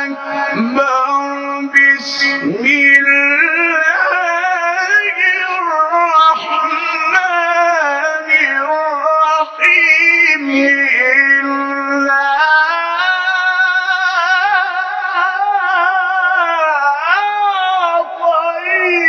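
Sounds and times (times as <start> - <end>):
person chanting melodically: 0.0 - 19.0.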